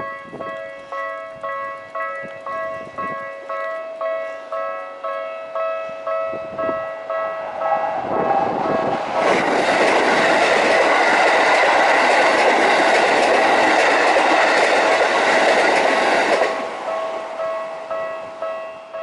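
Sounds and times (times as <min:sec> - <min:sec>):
electronic crossing warning bell: 0:00.0 - 0:07.5, 0:16.8 - 0:19.0
train wheel and rail noise: 0:00.0 - 0:19.0.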